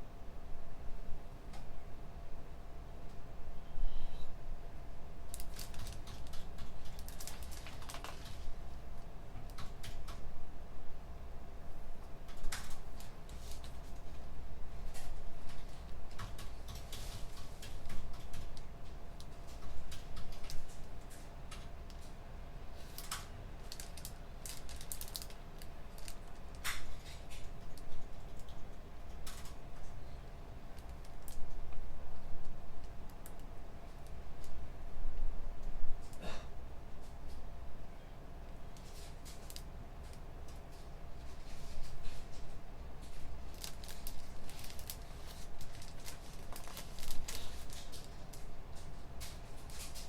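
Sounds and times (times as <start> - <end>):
steady low hum: 0.0 - 50.0
keyboard typing: 5.4 - 8.4.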